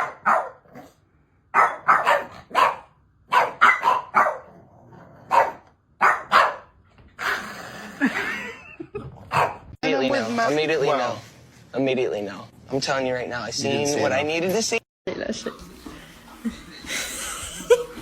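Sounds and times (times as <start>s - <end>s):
dog barking: 0.0s - 0.8s, 1.5s - 4.5s, 5.2s - 6.8s, 9.3s - 9.7s.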